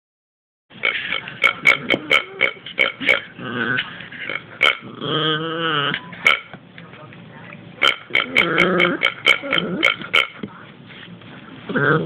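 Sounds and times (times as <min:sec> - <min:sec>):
dog wavering vocal sound: 0:08.2 - 0:10.1.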